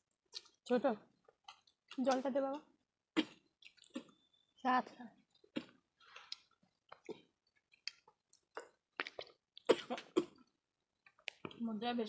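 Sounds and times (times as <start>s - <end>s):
people chewing food: 0.0s - 11.9s.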